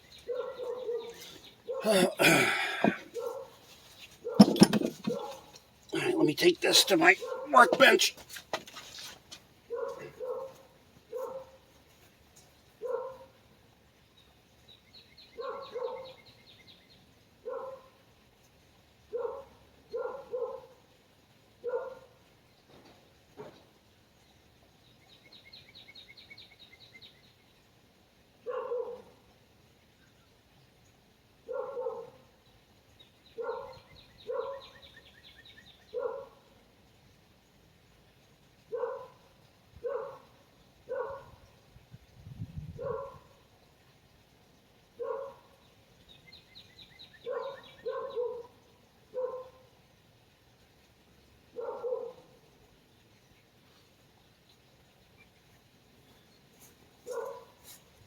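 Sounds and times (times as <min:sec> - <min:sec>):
dog barking: 0:00.3 - 0:03.6, 0:04.2 - 0:05.5, 0:06.6 - 0:08.1, 0:09.7 - 0:11.6, 0:12.8 - 0:13.4, 0:15.4 - 0:16.2, 0:17.4 - 0:18.0, 0:19.1 - 0:20.8, 0:21.6 - 0:22.1, 0:28.4 - 0:29.2, 0:31.5 - 0:32.2, 0:33.4 - 0:34.7, 0:35.9 - 0:36.5, 0:38.7 - 0:39.2, 0:39.8 - 0:40.3, 0:40.9 - 0:41.4, 0:42.8 - 0:43.3, 0:45.0 - 0:45.4, 0:47.2 - 0:49.6, 0:51.6 - 0:52.3, 0:57.1 - 0:57.7.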